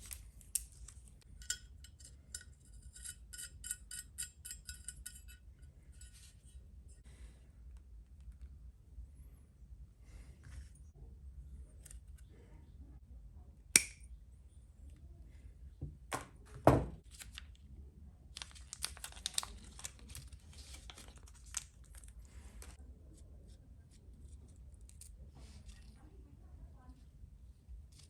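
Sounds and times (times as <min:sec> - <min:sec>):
knocks on workbench: 0:15.8 - 0:17.0.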